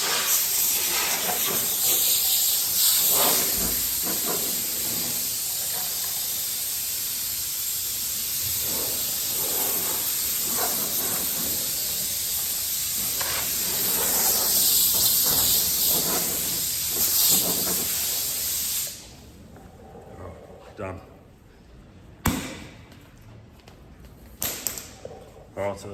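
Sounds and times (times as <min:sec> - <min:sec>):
air blow gun hissing: 0:00.0 - 0:19.1.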